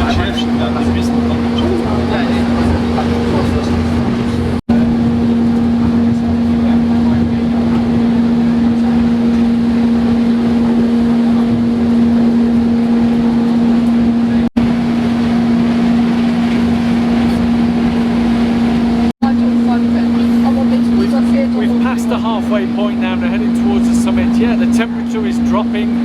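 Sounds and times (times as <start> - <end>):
train engine droning: 0.0 - 26.0
train running noise: 0.0 - 26.0.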